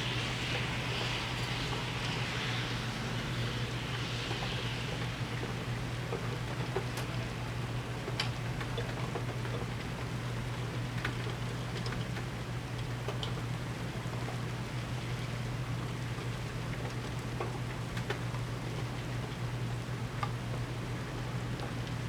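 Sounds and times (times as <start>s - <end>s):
constant low hum: 0.0s - 18.4s
steady rain falling: 0.0s - 22.0s
raindrops ticking nearby: 6.6s - 14.4s.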